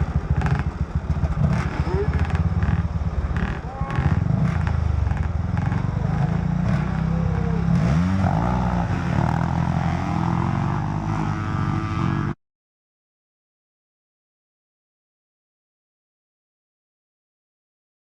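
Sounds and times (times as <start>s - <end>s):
dirt bike engines revving: 0.0s - 12.4s.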